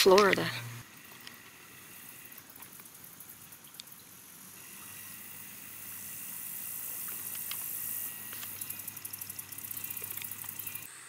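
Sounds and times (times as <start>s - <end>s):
low steady hum: 0.0s - 10.9s
night insects chorus: 0.0s - 11.0s
faint clicks: 2.3s - 4.0s, 7.0s - 10.9s.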